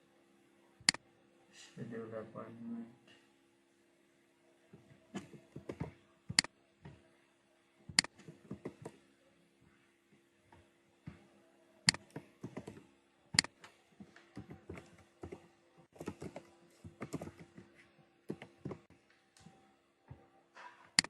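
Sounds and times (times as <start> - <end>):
faint hum: 0.0 - 21.0
typing on a keyboard: 16.0 - 17.7.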